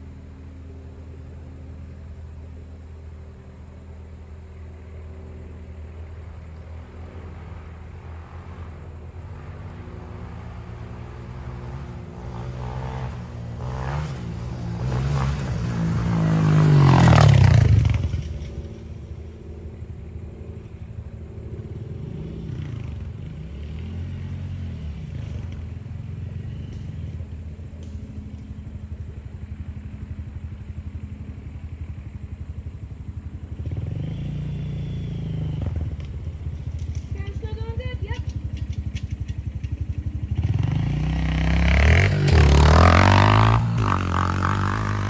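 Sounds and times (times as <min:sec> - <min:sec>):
motorbike engine revving: 0:09.3 - 0:19.4, 0:21.6 - 0:45.0.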